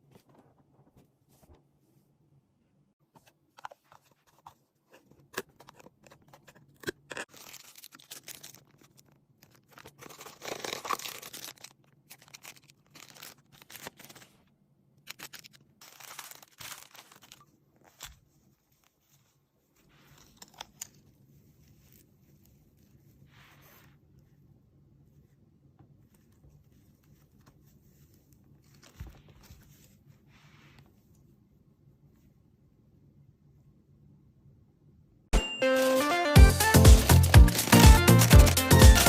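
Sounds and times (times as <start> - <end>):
packaging rustling and crinkling: 3.6 - 19.2.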